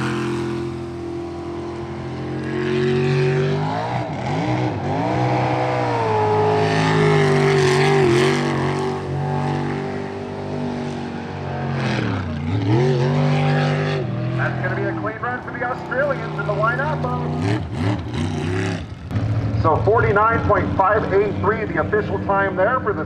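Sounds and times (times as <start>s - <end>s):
boat engine running hard: 0.0s - 23.0s.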